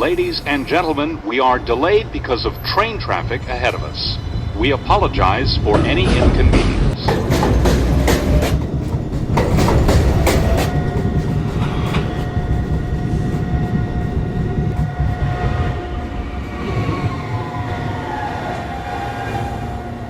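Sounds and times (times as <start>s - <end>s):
train wheels clicking over rail joints: 5.0s - 15.6s
train motor whine: 7.3s - 20.0s.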